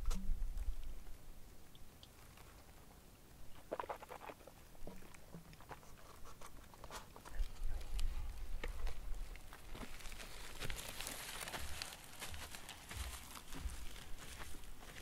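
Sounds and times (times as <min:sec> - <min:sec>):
person chewing crunchy food: 0:03.6 - 0:04.6.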